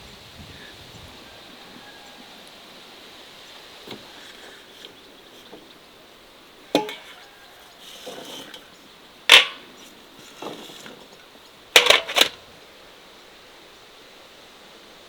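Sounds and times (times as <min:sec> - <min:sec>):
soft scraping or rustling: 0:03.4 - 0:05.8, 0:06.7 - 0:12.4
hard objects knocking: 0:06.8 - 0:07.2, 0:11.8 - 0:12.4.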